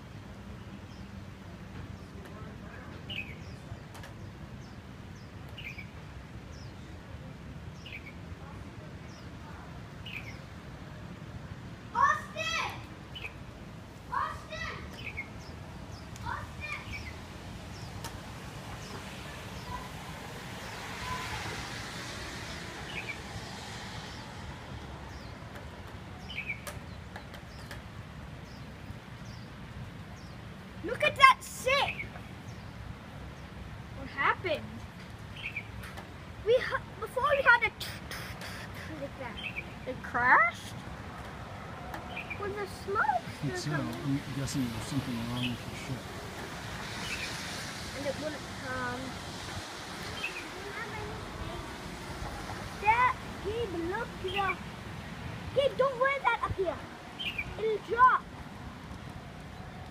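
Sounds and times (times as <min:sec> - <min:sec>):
small birds chirping: 0:00.4 - 0:10.7, 0:11.9 - 0:59.9
bird chirping: 0:25.0 - 0:27.8, 0:57.1 - 0:58.1.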